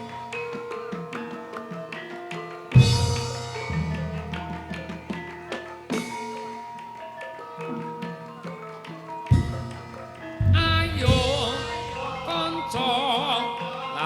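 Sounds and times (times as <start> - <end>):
drum playing: 2.7 - 6.8, 9.3 - 14.0
bronze keys and gongs ringing: 2.7 - 14.0.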